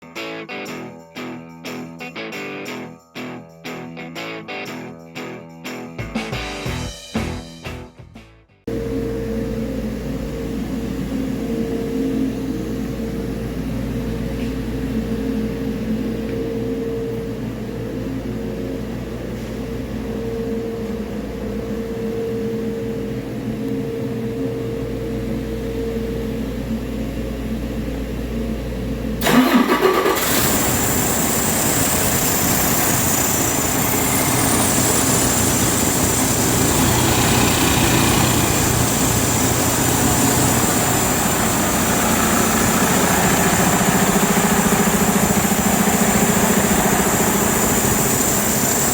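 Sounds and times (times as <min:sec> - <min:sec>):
low hum with held tone: 0:08.7 - 0:29.2
diesel engine starting and running: 0:28.8 - 0:48.9.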